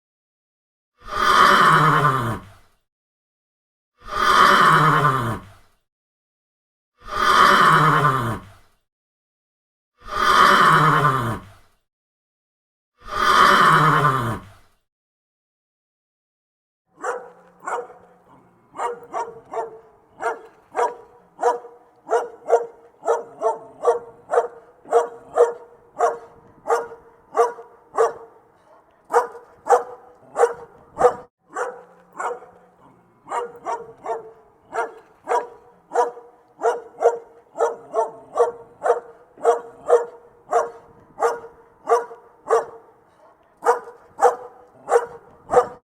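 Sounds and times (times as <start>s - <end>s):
dog barking: 17.0s - 45.8s.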